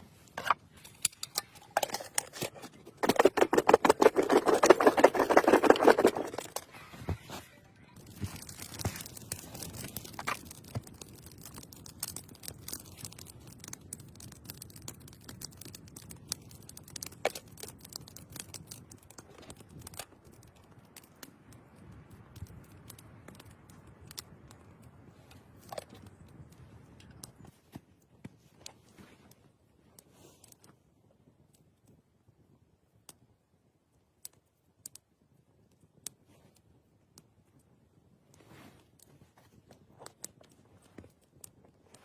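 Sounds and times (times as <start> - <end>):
rustling and scraping of gear: 0.0 - 10.8, 27.3 - 30.8, 38.4 - 42.0
small clicks and snaps: 7.9 - 27.5, 34.2 - 37.7.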